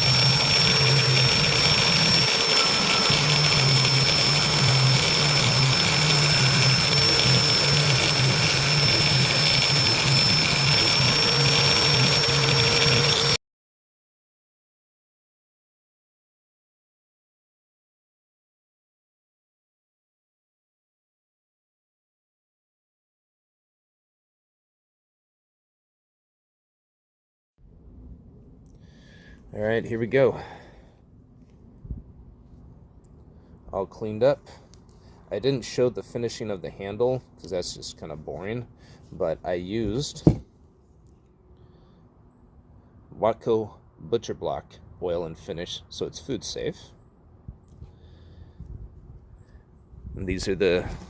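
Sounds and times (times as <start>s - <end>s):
electric power tool whining: 0.0s - 13.4s.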